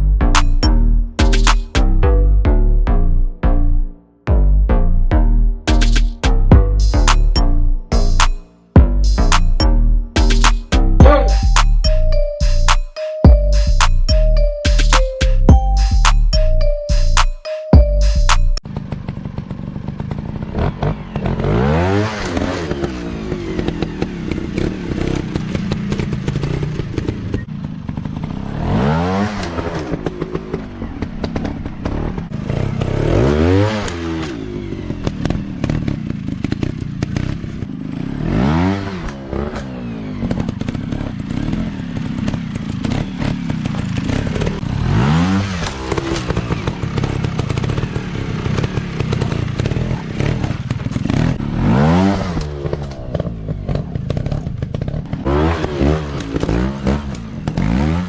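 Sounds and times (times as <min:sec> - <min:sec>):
dirt bike engines revving: 0:18.8 - 0:58.0.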